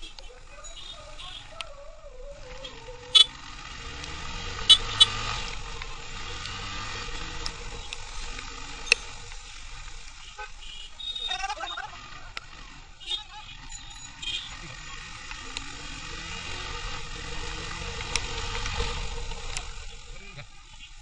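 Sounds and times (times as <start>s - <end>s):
road and traffic noise: 0.0s - 21.0s
rain hiss: 3.4s - 11.0s, 14.8s - 21.0s.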